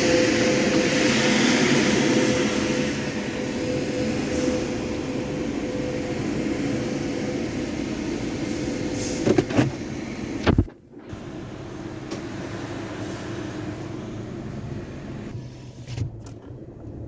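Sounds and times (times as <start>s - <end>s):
car wash equipment drone: 0.0s - 17.0s.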